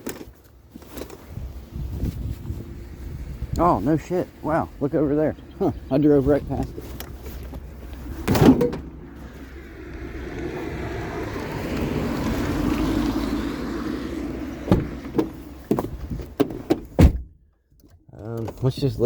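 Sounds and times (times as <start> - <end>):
vehicle running noise: 0.0 - 17.0.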